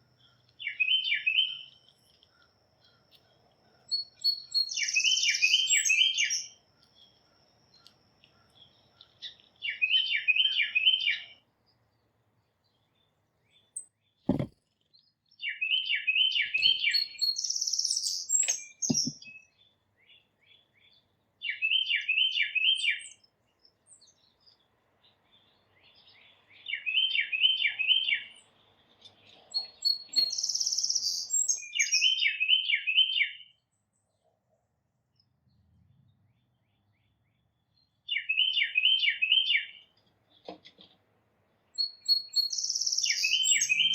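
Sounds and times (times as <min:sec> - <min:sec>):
songbird singing: 0:00.0 - 0:34.5, 0:35.1 - 0:43.9
soft knocks: 0:14.3 - 0:14.6, 0:18.9 - 0:19.2.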